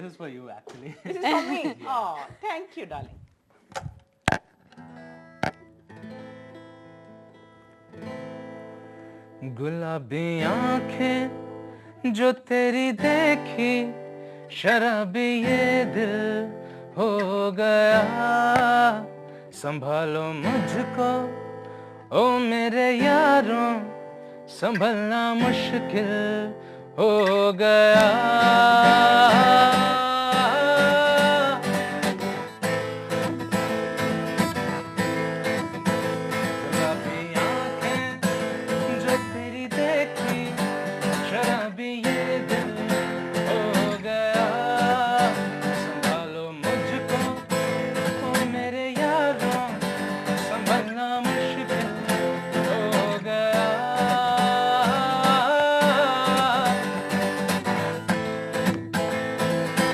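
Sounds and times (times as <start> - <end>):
acoustic guitar strummed and picked: 3.6 - 59.9
person singing: 9.4 - 11.4, 24.6 - 31.9, 36.5 - 58.1.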